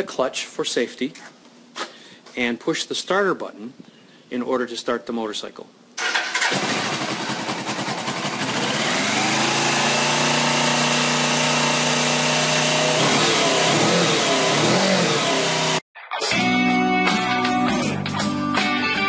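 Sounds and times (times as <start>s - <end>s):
motorcycle engine idling: 6.5s - 15.6s.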